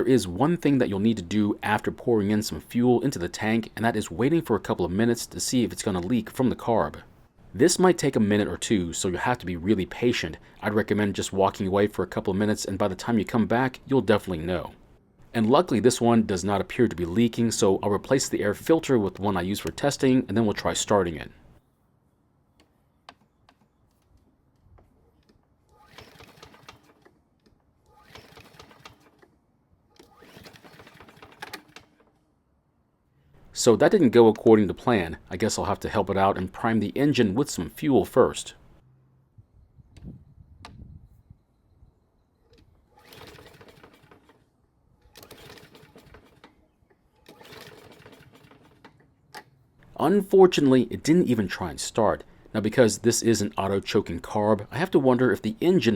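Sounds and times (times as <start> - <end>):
mower engine cranking: 25.2 - 32.3, 42.5 - 52.6.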